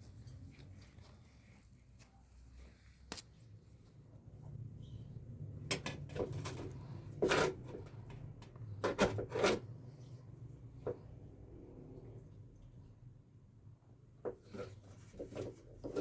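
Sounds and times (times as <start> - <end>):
hard objects knocking and scraping: 5.7 - 9.7, 14.2 - 16.0.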